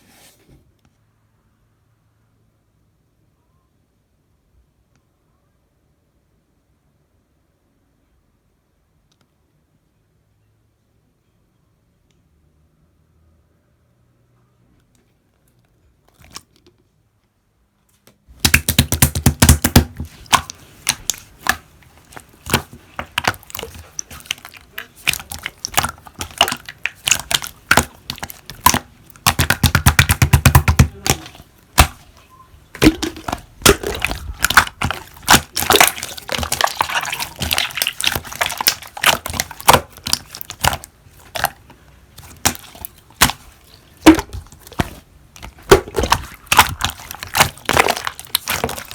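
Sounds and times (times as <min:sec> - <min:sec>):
slime squeezed by hand: 0:18.4 - 0:48.9.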